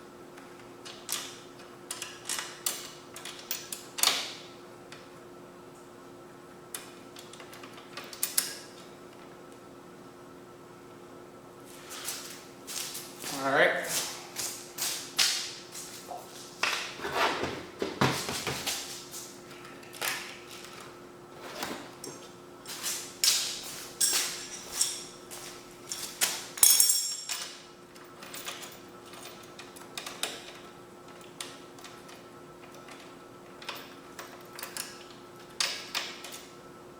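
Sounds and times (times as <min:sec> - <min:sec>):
hand tools knocking and scraping: 0:15.8 - 0:19.2.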